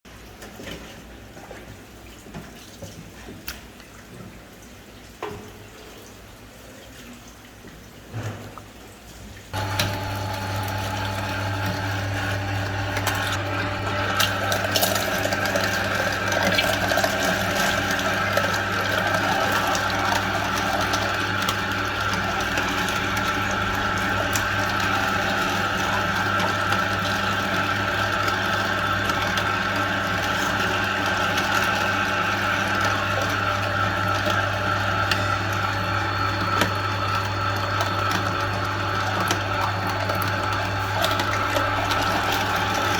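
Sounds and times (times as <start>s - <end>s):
meat grinder motor humming: 9.6s - 42.9s.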